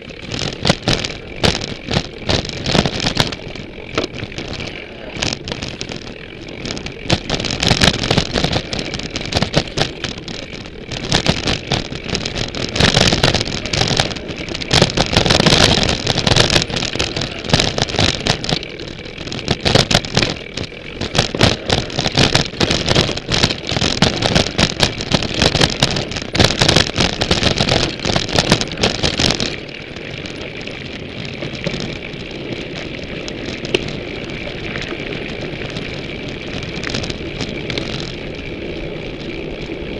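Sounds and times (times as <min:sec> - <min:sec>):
mountain bike rattling over rough ground: 0:00.0 - 0:39.9.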